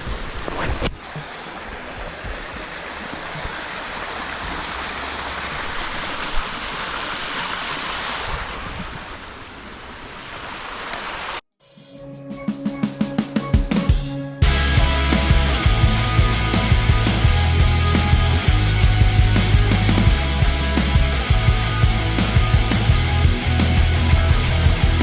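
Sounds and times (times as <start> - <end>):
waterfall rushing water: 0.0 - 11.4.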